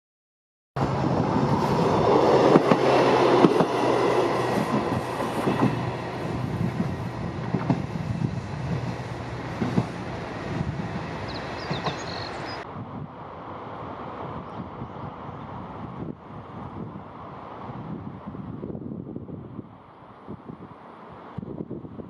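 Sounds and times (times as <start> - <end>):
diesel railcar engine humming: 0.8 - 17.8
train wheels clicking over rail joints: 2.1 - 12.1.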